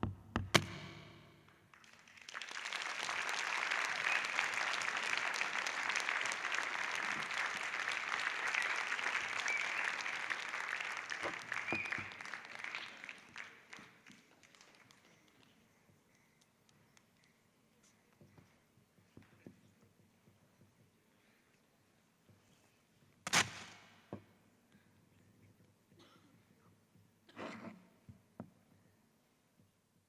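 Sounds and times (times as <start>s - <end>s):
audience applauding: 1.7s - 15.6s
shouts and whistles: 4.0s - 4.6s, 9.3s - 10.4s, 11.6s - 12.2s.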